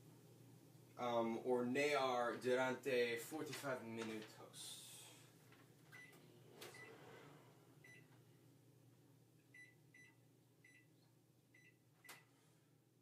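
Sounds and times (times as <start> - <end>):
oven keypad beeps: 6.0 - 7.0, 7.8 - 8.1.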